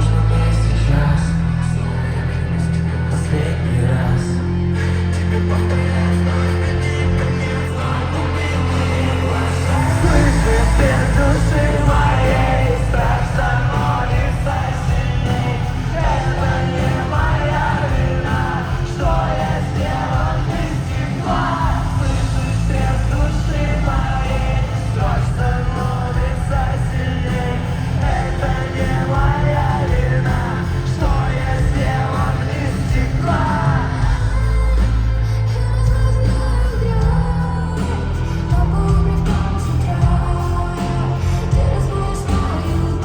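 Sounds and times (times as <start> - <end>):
heavy bass line: 0.0 - 43.0
person singing: 2.3 - 43.0
live rock band playing: 8.5 - 36.4, 37.0 - 43.0.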